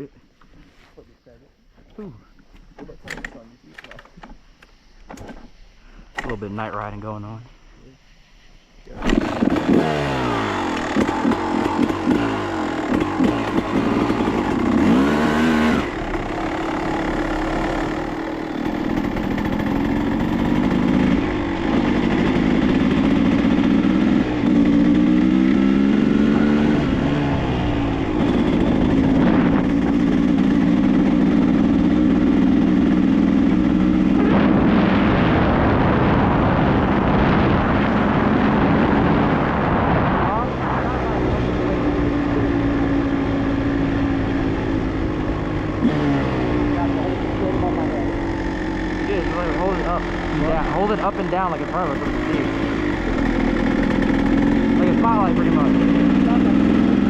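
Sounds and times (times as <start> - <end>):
dirt bike engine revving: 9.0 - 57.0.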